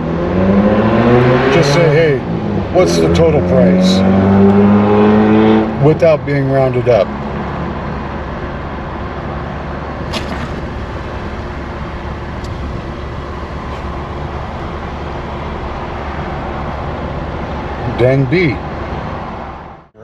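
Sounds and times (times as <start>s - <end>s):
vehicle engine idling: 5.8s - 20.0s.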